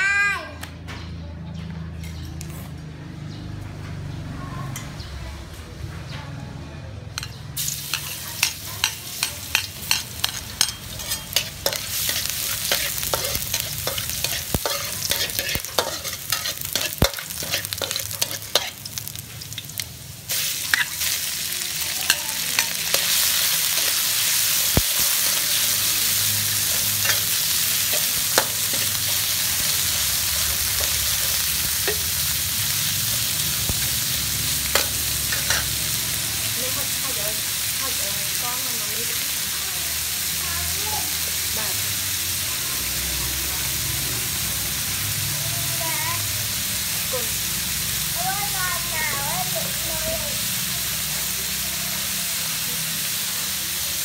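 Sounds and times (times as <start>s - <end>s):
metal utensil scraping wok: 7.2s - 40.3s
garlic sizzling in hot oil: 7.2s - 54.0s
beef frying sizzle: 7.6s - 54.0s.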